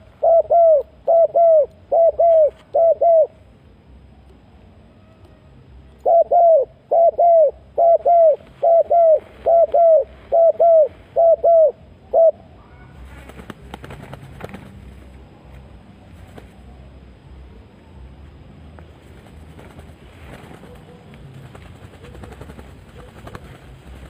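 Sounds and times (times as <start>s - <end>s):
dove cooing: 0.0s - 3.4s, 6.0s - 13.7s, 19.5s - 24.0s.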